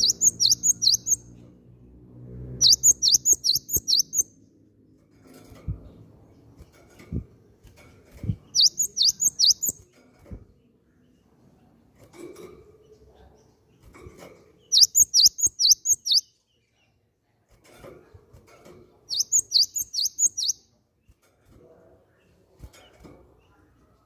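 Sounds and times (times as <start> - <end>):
bird singing high sweeping notes: 0.0 - 1.2, 2.6 - 4.3, 8.6 - 9.8, 14.7 - 16.3, 19.1 - 20.6.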